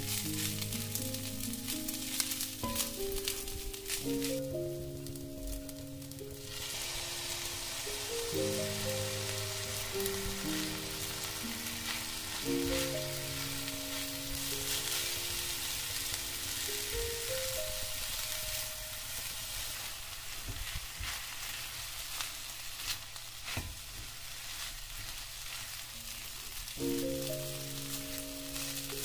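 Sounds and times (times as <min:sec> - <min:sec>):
rice sizzling in a wok: 0:00.0 - 0:29.0
spatula stirring food: 0:05.6 - 0:16.9, 0:18.9 - 0:26.6.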